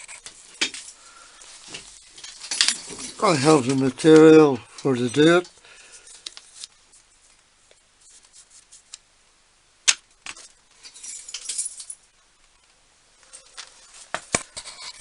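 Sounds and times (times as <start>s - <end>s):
small metal parts clinking: 0.5s - 6.7s, 10.4s - 12.1s.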